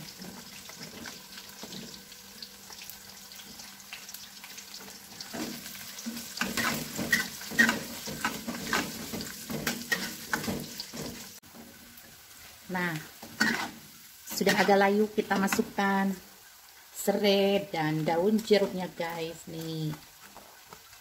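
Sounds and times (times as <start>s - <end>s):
shallots sizzling in hot oil: 0.0s - 21.0s
metal spatula scraping pan: 5.2s - 11.3s, 13.2s - 15.7s.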